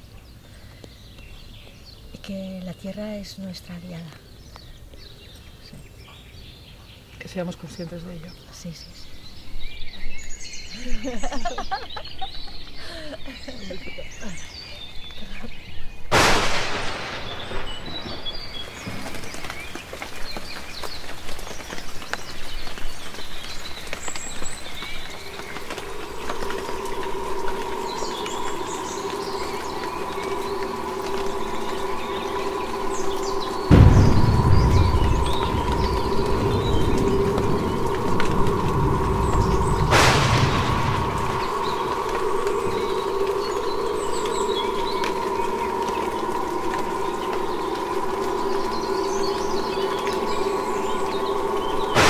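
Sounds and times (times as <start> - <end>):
small birds chirping: 0.0 - 52.0
steady background noise: 6.9 - 52.0
steady humming tone: 23.9 - 52.0.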